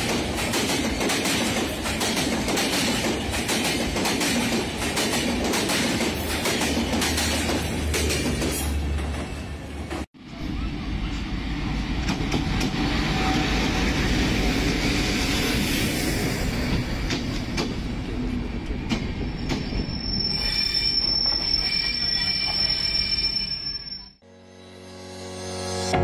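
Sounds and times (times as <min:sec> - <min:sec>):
train rumbling past: 0:00.0 - 0:23.6
high wheel squeal: 0:19.2 - 0:24.2.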